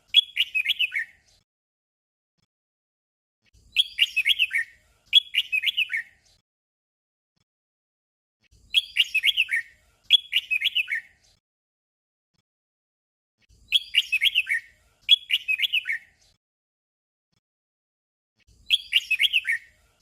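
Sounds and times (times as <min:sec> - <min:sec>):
bird singing whistled notes: 0:00.0 - 0:01.3, 0:03.6 - 0:06.3, 0:08.6 - 0:11.3, 0:13.6 - 0:16.2, 0:18.6 - 0:19.8.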